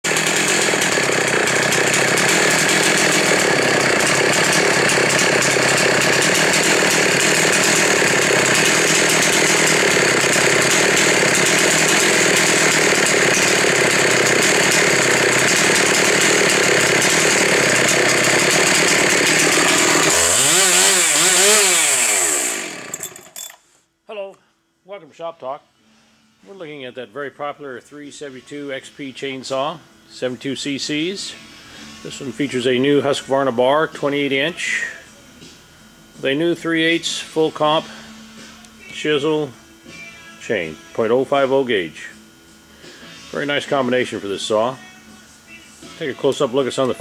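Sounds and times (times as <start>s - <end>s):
chainsaw running at high revs: 0.0s - 23.6s, 42.8s - 44.8s.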